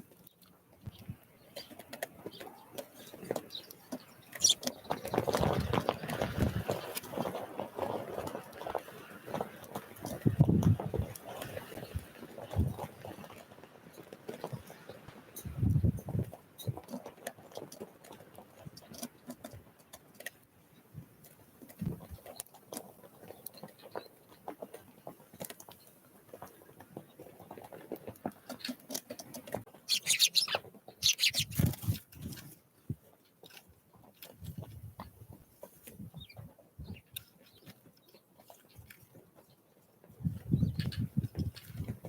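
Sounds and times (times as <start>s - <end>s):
birds pecking at feeder: 0.1s - 20.4s, 21.0s - 33.6s
wings fluttering: 0.9s - 13.5s, 27.0s - 32.6s
high bird call: 4.3s - 4.7s, 29.8s - 31.6s.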